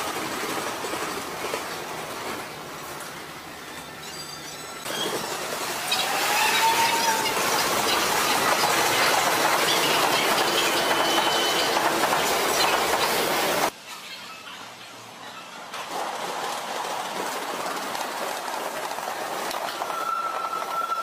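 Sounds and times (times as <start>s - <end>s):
train running noise: 0.0s - 21.0s
train wheels clattering: 4.1s - 13.7s, 15.8s - 21.0s
high squeal: 19.8s - 21.0s.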